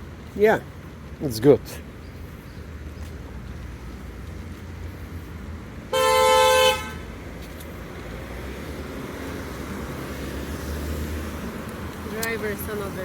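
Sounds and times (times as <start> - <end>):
traffic rumble: 0.0 - 13.0
car horn honk: 5.9 - 7.1.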